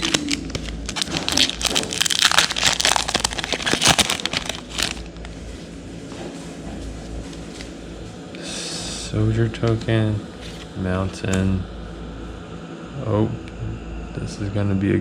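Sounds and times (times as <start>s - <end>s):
card handling: 0.0s - 5.2s
foil wrapper crinkling: 0.0s - 5.3s.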